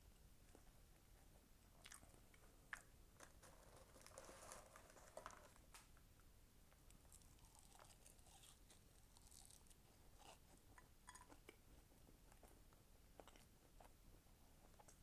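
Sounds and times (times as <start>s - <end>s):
close chewing of food: 1.7s - 4.2s, 6.8s - 15.0s.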